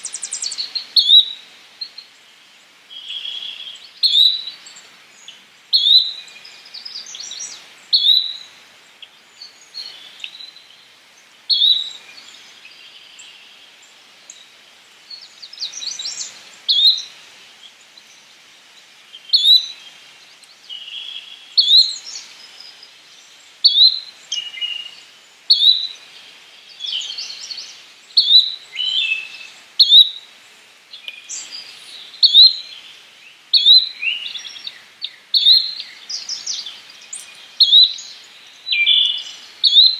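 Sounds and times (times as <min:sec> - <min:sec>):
birds twittering: 0:00.0 - 0:01.4, 0:30.9 - 0:39.9.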